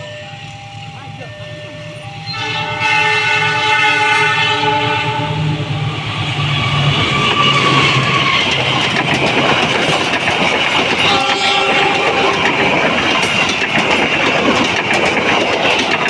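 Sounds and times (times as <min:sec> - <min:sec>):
train wheels on rails: 0:00.0 - 0:16.0
train horn chord: 0:00.9 - 0:05.7, 0:11.0 - 0:12.4.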